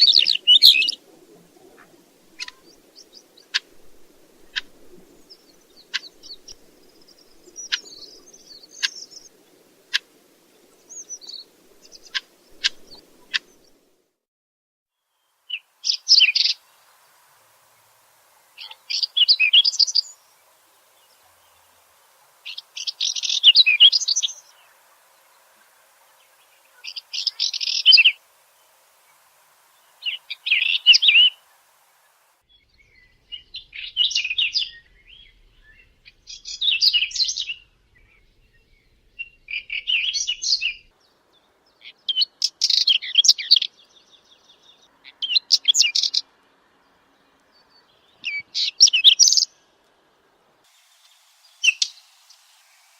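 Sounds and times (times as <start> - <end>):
bird scratchy warbling song: 0.0 - 13.8, 15.5 - 16.6, 22.4 - 24.6, 26.3 - 28.2, 29.8 - 32.2, 51.6 - 52.8.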